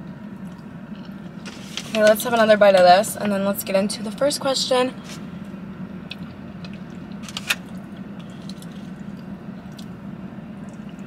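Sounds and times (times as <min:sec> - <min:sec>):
steady low hum: 0:00.0 - 0:11.0
wet chewing and mouth clicks: 0:08.0 - 0:10.0.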